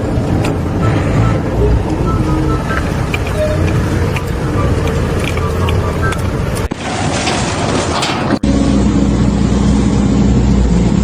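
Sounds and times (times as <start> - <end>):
engine humming: 0.0 - 11.0
rough noise: 3.3 - 8.4.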